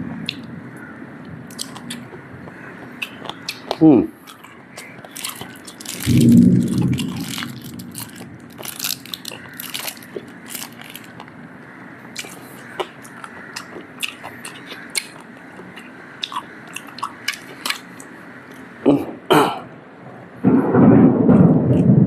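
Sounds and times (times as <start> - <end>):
chewing crunchy food: 1.5 - 11.4, 12.0 - 18.7.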